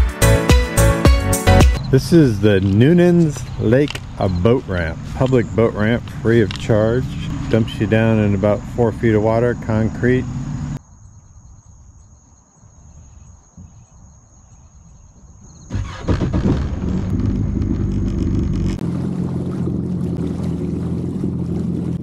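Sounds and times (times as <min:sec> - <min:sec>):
personal watercraft engine running: 0:03.0 - 0:10.8, 0:15.7 - 0:22.0
insects trilling: 0:07.4 - 0:16.0.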